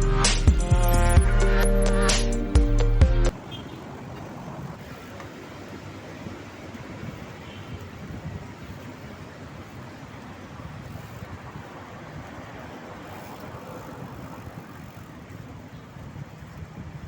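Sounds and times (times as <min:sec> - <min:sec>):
road traffic: 0:00.0 - 0:17.0
wind noise on microphone: 0:05.8 - 0:17.0.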